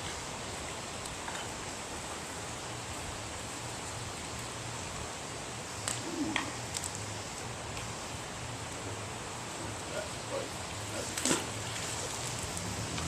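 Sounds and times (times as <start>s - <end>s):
river water rushing: 6.5s - 13.0s.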